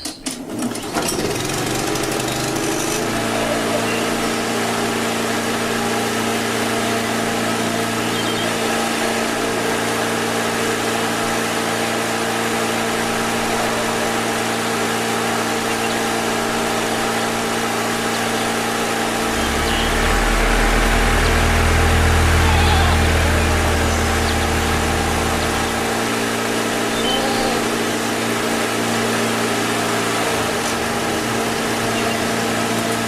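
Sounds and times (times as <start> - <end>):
small engine humming: 0.6 - 33.0
deeper louder hum: 16.4 - 28.5.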